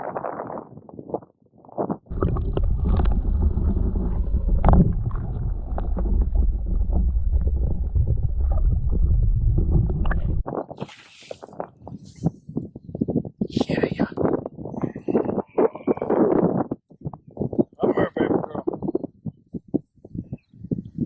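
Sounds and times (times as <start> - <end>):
wind buffeting microphone: 0.0 - 21.0
boat on open water: 2.1 - 12.5.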